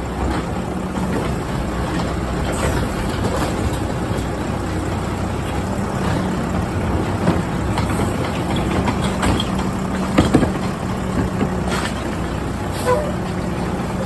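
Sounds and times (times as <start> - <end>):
garbage truck engine humming: 0.0 - 14.0.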